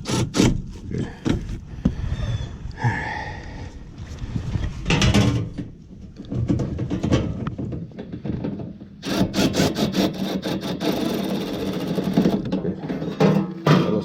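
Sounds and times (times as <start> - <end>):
rubbing and scraping parts: 0.0 - 1.7, 4.5 - 14.0.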